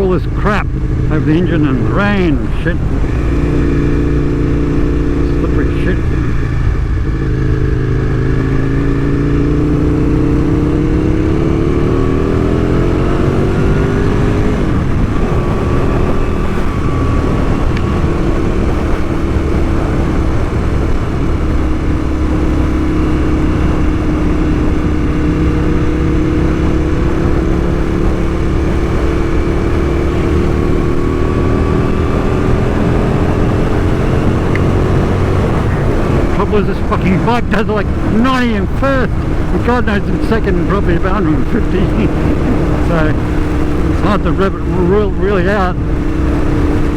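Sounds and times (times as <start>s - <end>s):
motorcycle engine revving: 0.0s - 46.9s
wind noise: 0.0s - 46.9s
rain noise: 13.6s - 46.9s.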